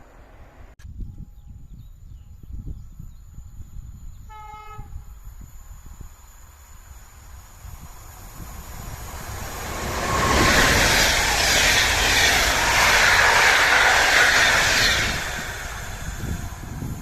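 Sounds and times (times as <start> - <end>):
train wheels rushing on rails: 6.6 - 17.0.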